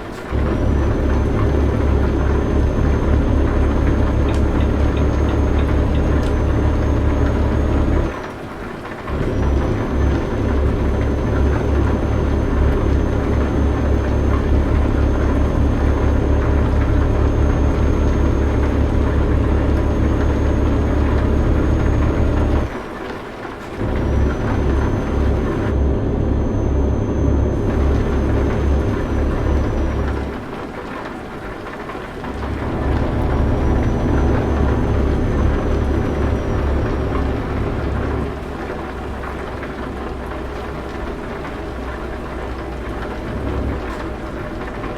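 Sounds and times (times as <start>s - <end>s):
truck engine drone: 0.0s - 44.9s
faint high whine: 32.3s - 40.8s.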